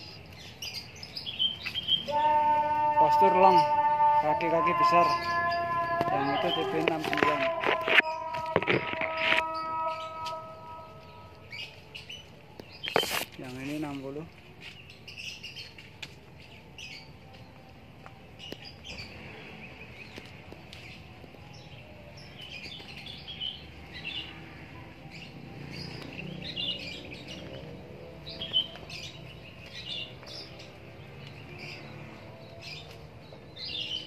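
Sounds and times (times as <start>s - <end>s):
small birds chirping: 0.0s - 34.0s.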